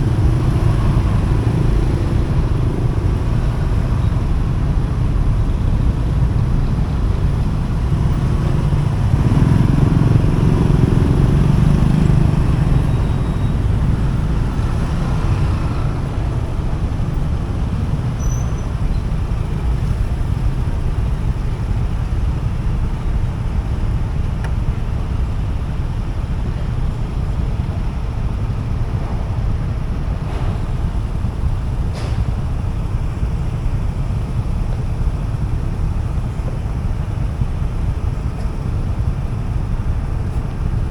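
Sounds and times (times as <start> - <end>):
motorcycle engine: 0.0 - 22.6
road traffic noise: 0.0 - 40.9.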